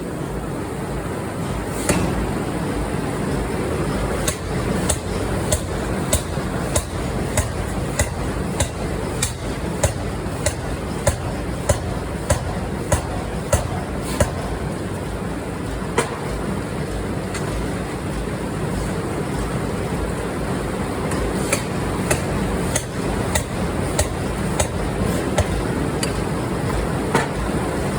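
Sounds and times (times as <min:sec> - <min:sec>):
factory noise: 0:00.0 - 0:27.9
forging machine striking steel: 0:03.8 - 0:14.9, 0:21.1 - 0:27.4.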